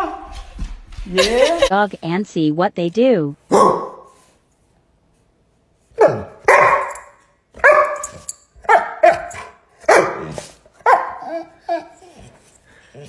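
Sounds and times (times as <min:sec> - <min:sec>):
dog barking: 0:03.5 - 0:04.2, 0:06.0 - 0:11.4.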